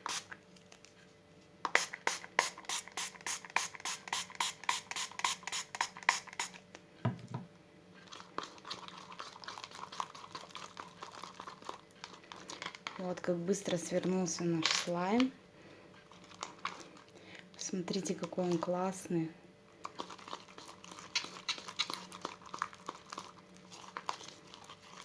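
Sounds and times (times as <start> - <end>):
slime stirring scrapes: 8.0 - 15.2, 15.8 - 25.0.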